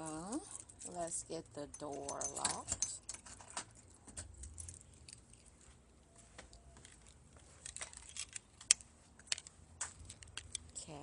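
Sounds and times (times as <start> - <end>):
keys jangling: 0.0 - 5.5, 7.6 - 8.7.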